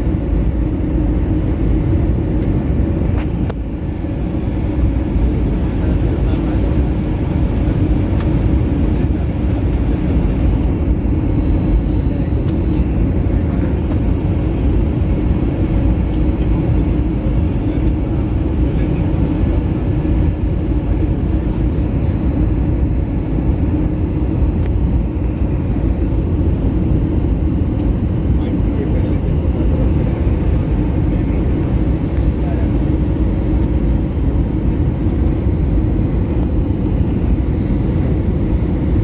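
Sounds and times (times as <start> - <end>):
airliner cabin engine roar: 0.0 - 39.0
constant hum: 0.0 - 39.0.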